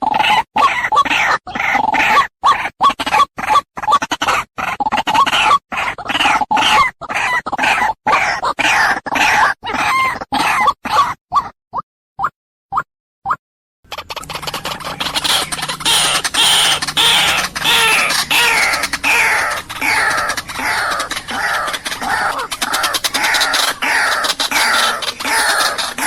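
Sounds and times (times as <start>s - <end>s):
bird calling harsh repeated notes: 13.9s - 26.0s.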